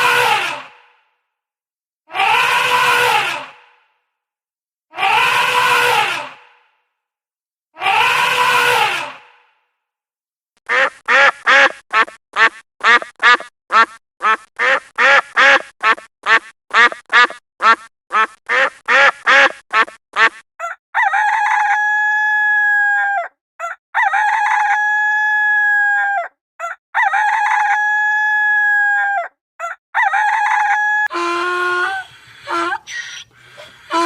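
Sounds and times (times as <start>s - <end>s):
duck quacking: 10.6s - 20.4s, 31.1s - 34.0s
rooster crowing: 30.0s - 34.0s.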